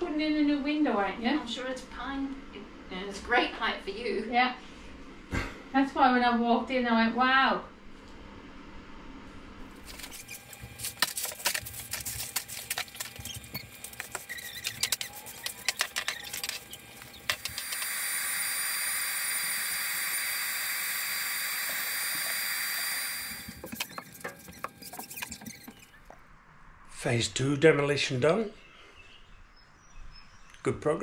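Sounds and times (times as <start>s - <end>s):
shop vacuum whooshing hum: 9.7s - 24.8s.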